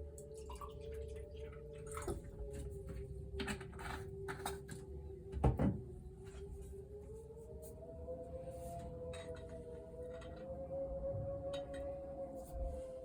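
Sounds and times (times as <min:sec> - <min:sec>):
steady wavering tone: 0:00.0 - 0:13.0
water pouring: 0:00.2 - 0:02.4.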